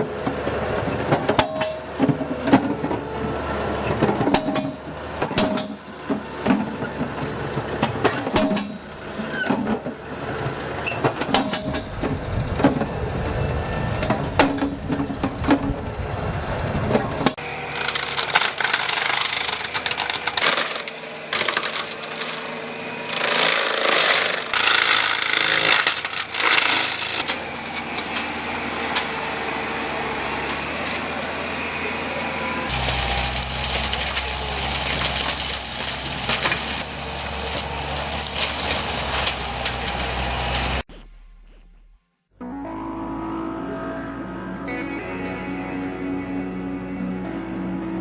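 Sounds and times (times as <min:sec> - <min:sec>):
low engine rumble: 0:00.0 - 0:44.7
machinery metallic clattering: 0:16.8 - 0:29.2.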